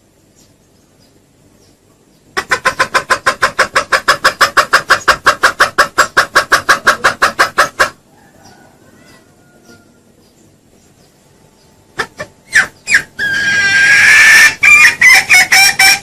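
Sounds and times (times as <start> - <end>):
junglefowl clucking fast: 2.4 - 9.8, 12.0 - 16.0.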